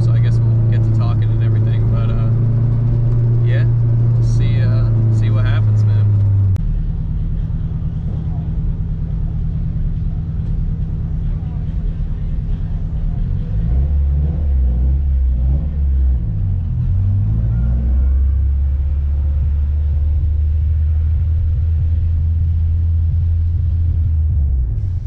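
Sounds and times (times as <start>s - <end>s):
car engine low rumble: 0.0s - 25.0s.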